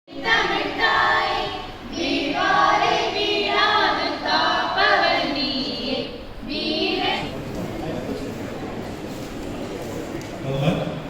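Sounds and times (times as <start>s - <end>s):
group of voices singing: 0.1s - 7.8s.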